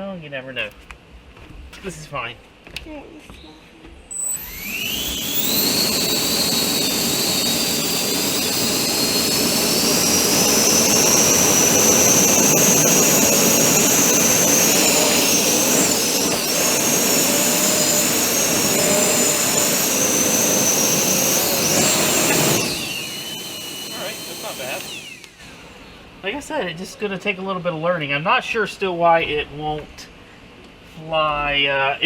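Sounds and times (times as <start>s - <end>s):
electric fans whining: 4.0s - 26.4s.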